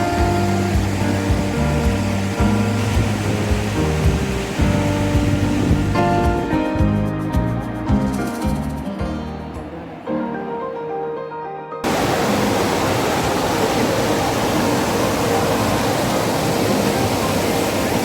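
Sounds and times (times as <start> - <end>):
waterfall rushing: 0.0 - 6.6, 11.8 - 18.0
background music: 0.0 - 12.6.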